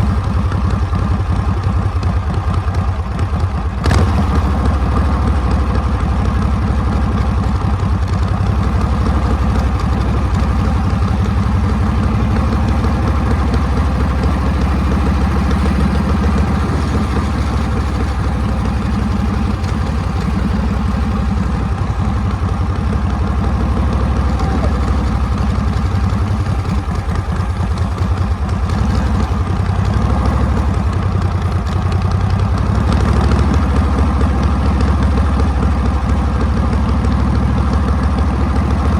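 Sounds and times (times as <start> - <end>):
motorcycle engine idling low: 0.0 - 38.9.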